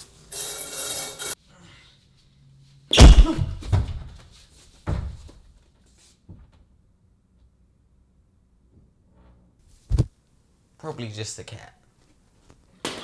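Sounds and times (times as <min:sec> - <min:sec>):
loud heavy crash: 0:03.0 - 0:03.7
soft thuds: 0:03.0 - 0:04.0.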